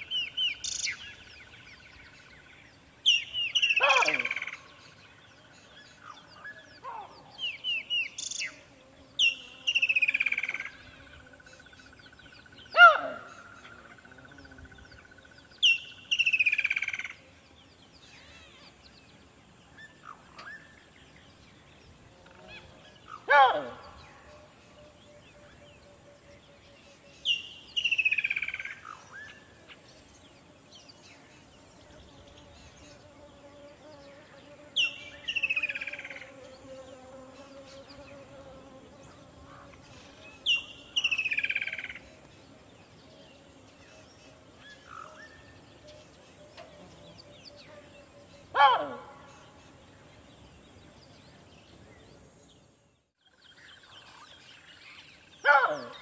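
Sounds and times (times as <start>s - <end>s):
sharp bird calls: 3.0s - 8.6s, 9.2s - 17.2s, 39.1s - 42.3s, 43.9s - 49.8s.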